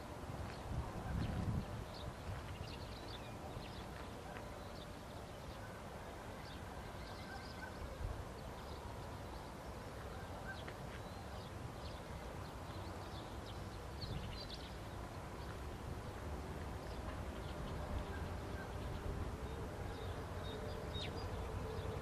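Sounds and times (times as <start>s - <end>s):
faint bird chirps: 2.8s - 8.0s.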